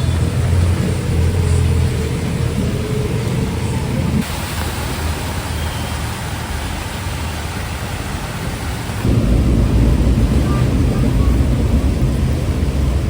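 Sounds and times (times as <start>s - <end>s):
heavy rain: 0.0s - 13.0s
road traffic rumbling: 0.0s - 13.0s.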